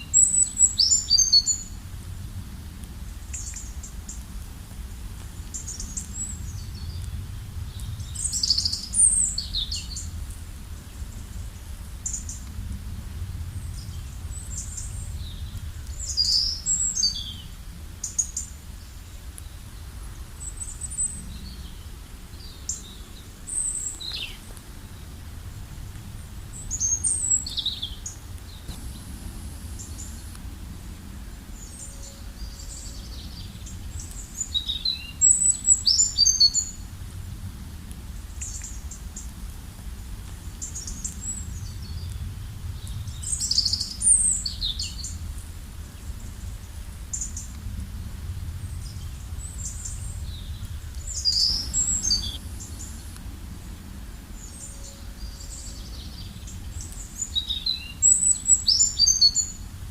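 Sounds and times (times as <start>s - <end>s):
low rumble: 1.4s - 35.8s, 36.5s - 57.2s
birds chirping and singing: 48.8s - 53.2s.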